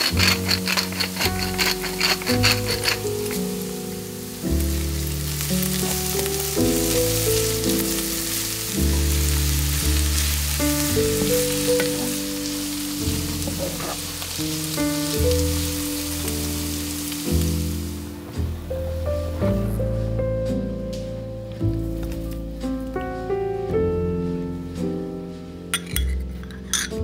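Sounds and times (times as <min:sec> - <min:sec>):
wooden spatula stirring: 0:00.0 - 0:03.4, 0:10.0 - 0:14.5
vegetables sizzling in a frying pan: 0:00.0 - 0:19.0
background music with held notes: 0:00.0 - 0:27.0.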